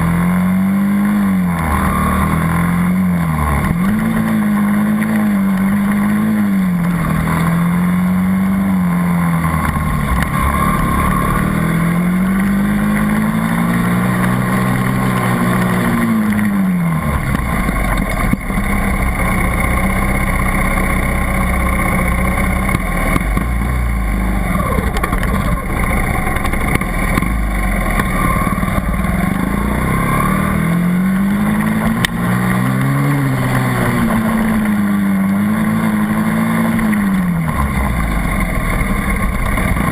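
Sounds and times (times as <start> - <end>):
dirt bike engine revving: 0.0 - 39.9
low rumble: 8.8 - 36.2.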